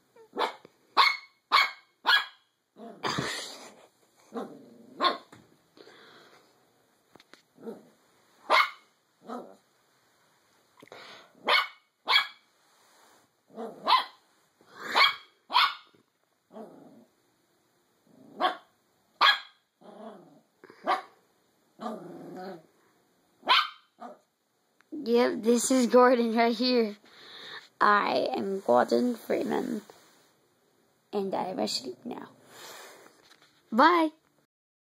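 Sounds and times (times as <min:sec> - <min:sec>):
dog barking: 0:00.3 - 0:02.4, 0:05.0 - 0:05.3, 0:08.5 - 0:09.4, 0:11.4 - 0:12.4, 0:13.6 - 0:14.2, 0:14.9 - 0:15.9, 0:18.4 - 0:19.6, 0:20.8 - 0:21.2, 0:23.4 - 0:24.2
dog growling: 0:02.8 - 0:03.2, 0:04.2 - 0:05.2, 0:09.2 - 0:09.6, 0:13.5 - 0:13.9, 0:16.5 - 0:17.1, 0:18.0 - 0:18.6, 0:19.8 - 0:20.5, 0:21.8 - 0:22.8.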